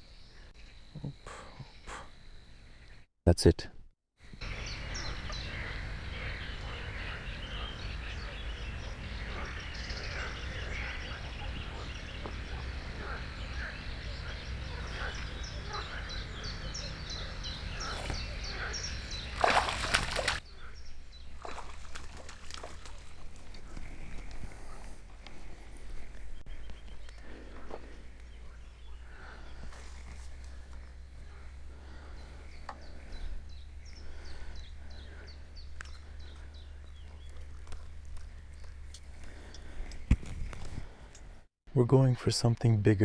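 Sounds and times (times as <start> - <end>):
chorus of chirping animal calls: 4.4 - 20.8.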